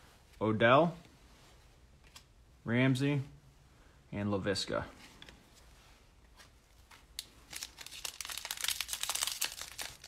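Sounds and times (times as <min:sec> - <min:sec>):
plastic wrapper crinkling and tearing: 0:07.1 - 0:10.0.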